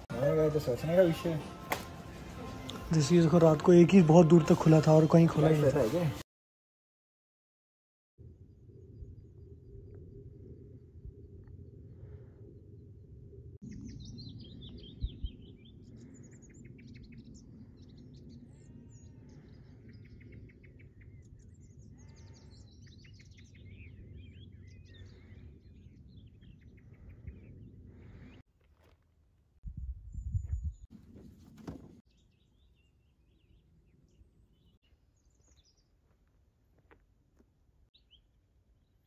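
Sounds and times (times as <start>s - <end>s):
steady low rumble: 8.2s - 22.6s
small birds chirping and singing: 13.6s - 28.5s, 32.0s - 36.3s, 37.9s - 39.0s.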